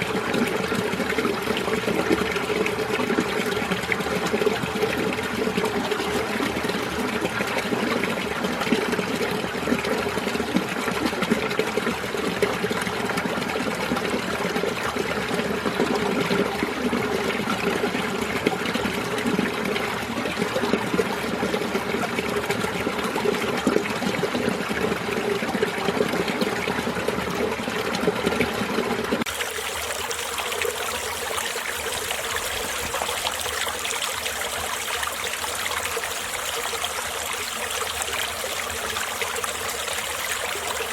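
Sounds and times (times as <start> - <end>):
stream flowing over rocks: 0.0 - 10.8, 28.5 - 40.9.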